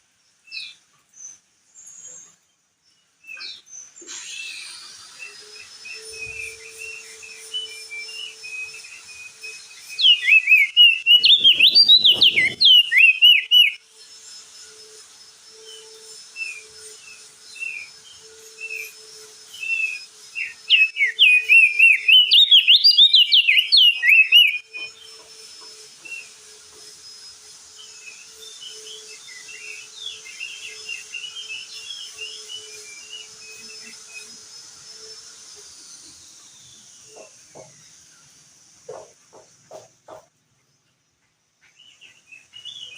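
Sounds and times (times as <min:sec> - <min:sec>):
bird chirping and warbling: 0:03.3 - 0:13.8, 0:19.6 - 0:25.2.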